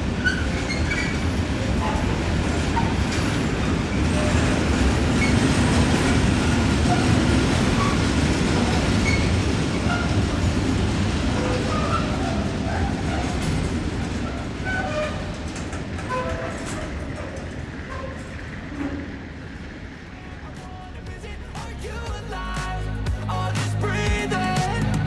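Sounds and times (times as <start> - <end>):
train wheels rumbling on rails: 0.0 - 21.4
short high squeaks: 16.0 - 19.2.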